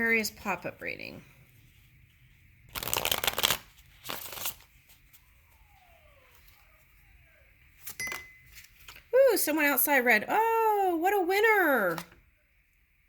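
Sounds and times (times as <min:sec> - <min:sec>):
cards being shuffled: 0:02.7 - 0:05.2.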